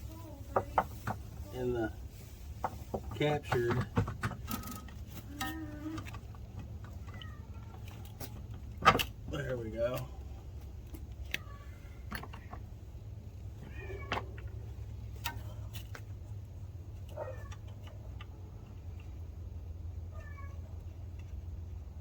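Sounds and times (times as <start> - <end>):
cat meowing: 7.1 - 8.1, 11.3 - 12.0, 13.6 - 14.4, 20.1 - 20.8.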